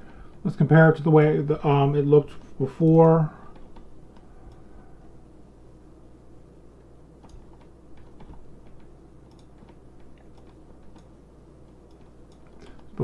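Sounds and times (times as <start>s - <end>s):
steady low hum: 0.0s - 13.0s
keyboard and mouse clicks: 7.2s - 11.1s, 11.9s - 13.0s.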